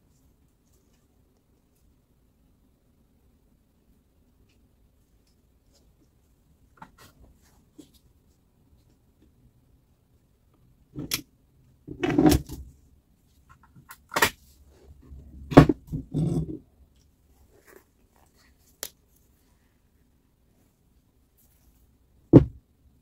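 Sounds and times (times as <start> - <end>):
sharp knocks and clunks: 22.3 - 22.6.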